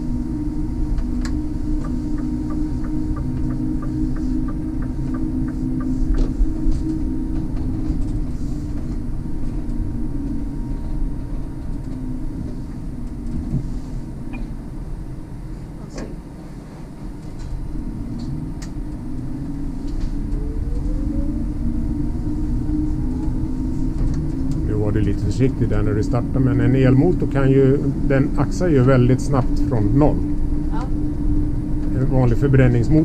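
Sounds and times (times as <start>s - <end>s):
electric motor whine: 0.0s - 15.8s, 16.7s - 33.0s
bus humming and rumbling: 0.0s - 33.0s.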